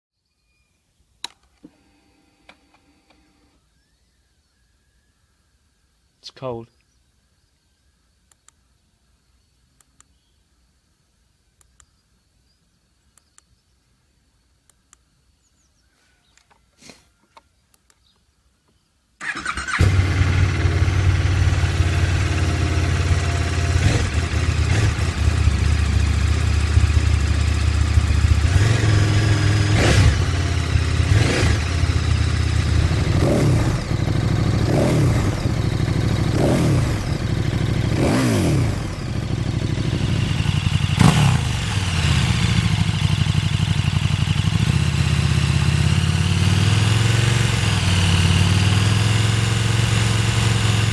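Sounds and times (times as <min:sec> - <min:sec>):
faint clicks: 0:08.2 - 0:08.6, 0:11.6 - 0:12.0
motorcycle engine revving: 0:19.2 - 0:50.9.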